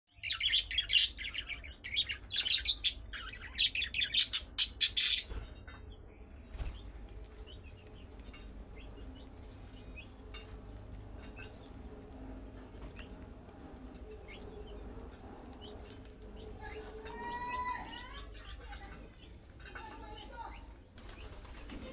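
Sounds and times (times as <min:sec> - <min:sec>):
budgerigars chirping: 0:00.1 - 0:05.8.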